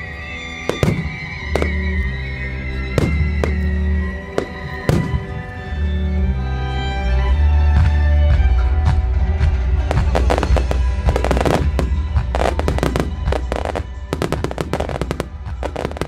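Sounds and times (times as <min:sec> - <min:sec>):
fireworks bursts and crackling: 0:00.0 - 0:06.0, 0:09.6 - 0:16.0
string music: 0:00.0 - 0:16.0.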